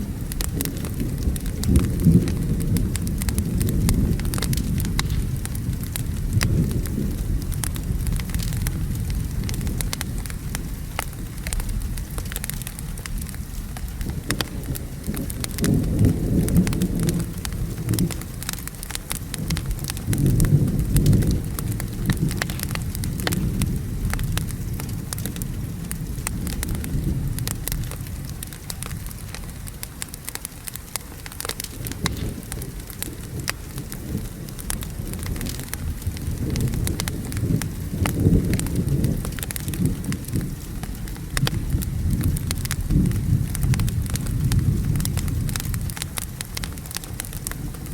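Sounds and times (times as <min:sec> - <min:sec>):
low rolling thunder: 0:00.0 - 0:47.9
steady rain: 0:00.0 - 0:47.9
wood fire crackling and popping: 0:00.0 - 0:47.9.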